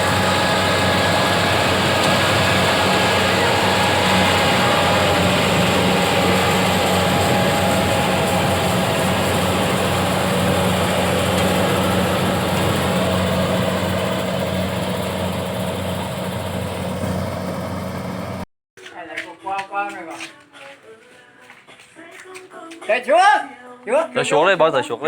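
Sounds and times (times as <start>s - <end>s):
motor engine humming: 0.0s - 18.5s.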